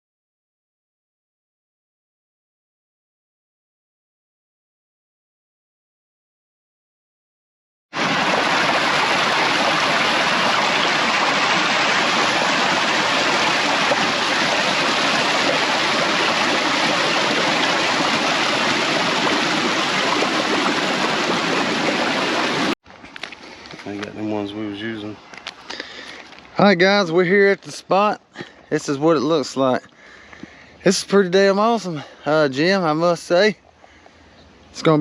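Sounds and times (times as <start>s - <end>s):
rushing creek water: 8.0s - 24.4s.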